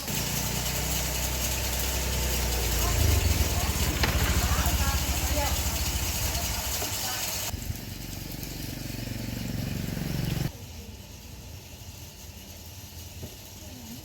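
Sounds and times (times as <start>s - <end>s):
small engine revving: 0.0s - 10.6s.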